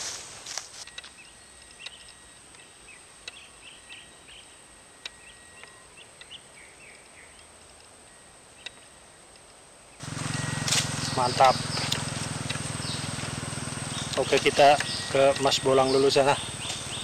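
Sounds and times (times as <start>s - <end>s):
small birds chirping: 1.1s - 7.5s, 10.0s - 17.0s
steady high-pitched whine: 10.0s - 17.0s.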